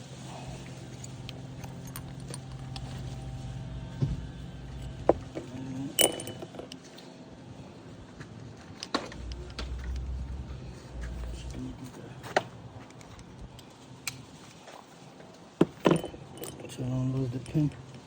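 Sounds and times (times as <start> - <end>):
low hum: 0.2 - 13.8
small metal parts clinking: 0.9 - 3.3, 4.6 - 7.0, 15.6 - 18.0.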